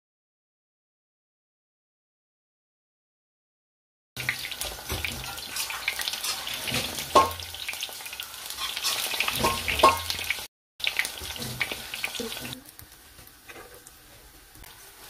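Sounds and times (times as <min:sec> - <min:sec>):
food sizzling in oil: 0:04.2 - 0:15.0
knocks on the pan: 0:04.6 - 0:05.4, 0:06.7 - 0:07.6, 0:09.3 - 0:10.2.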